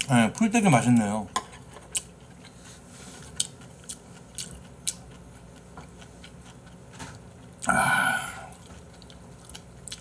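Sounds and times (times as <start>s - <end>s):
person chewing with wet smacks: 1.9s - 2.6s, 3.2s - 7.7s, 8.5s - 10.0s.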